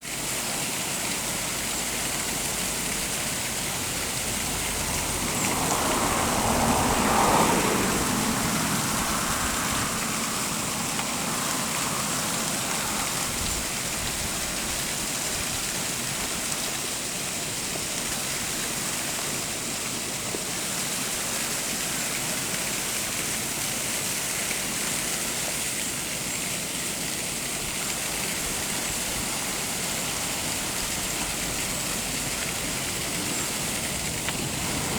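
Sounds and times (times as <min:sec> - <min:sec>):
waterfall rushing: 0:00.0 - 0:34.9
vehicle passing: 0:02.2 - 0:13.4, 0:28.0 - 0:34.9.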